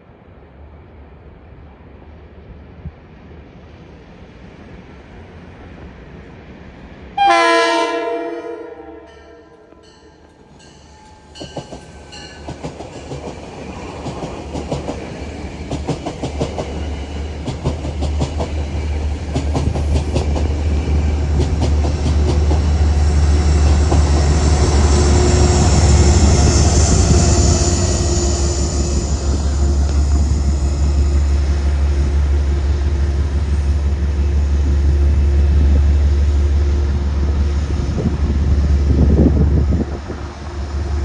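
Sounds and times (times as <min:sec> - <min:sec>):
rumble of train cars passing: 0:00.0 - 0:41.0
train wheels clicking over rail joints: 0:09.7 - 0:31.4.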